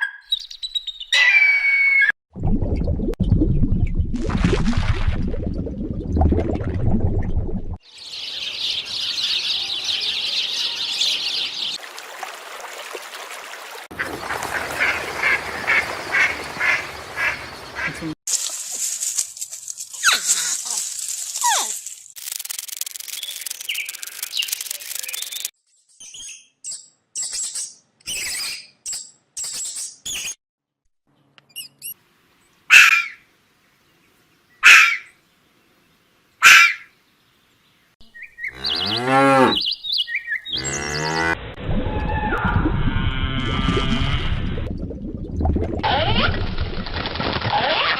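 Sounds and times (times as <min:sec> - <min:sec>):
bird calls: 0:14.0 - 0:18.2, 0:38.0 - 0:41.2.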